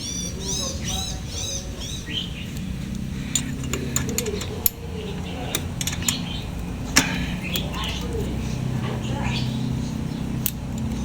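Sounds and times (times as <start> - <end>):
small bird chirping: 0.0 - 11.0
metallic clicks of hand tools: 2.5 - 4.9, 5.5 - 8.4, 10.4 - 11.0.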